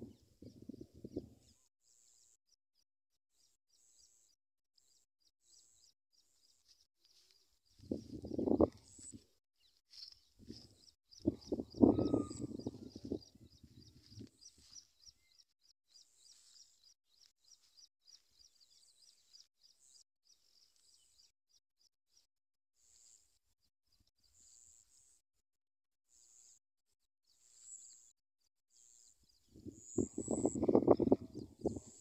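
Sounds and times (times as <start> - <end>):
small bird chirping: 3.3 - 23.2, 28.7 - 32.0.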